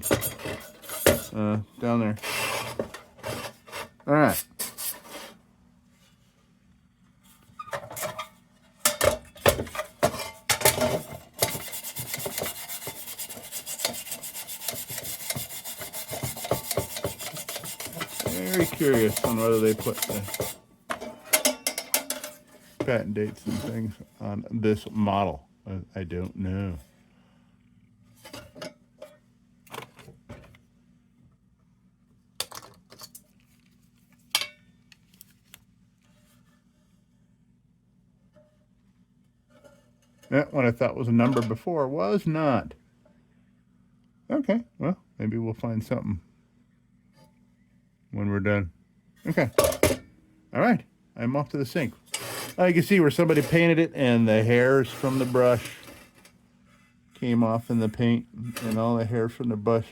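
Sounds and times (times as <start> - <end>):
brush scrubbing paint off metal: 10.9 - 20.6, 52.1 - 53.7, 54.5 - 56.1.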